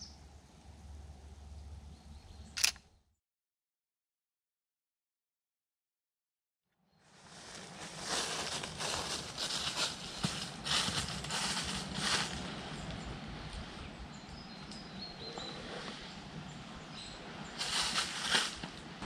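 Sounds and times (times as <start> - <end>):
footsteps on forest path: 7.2 - 13.0, 17.6 - 18.8.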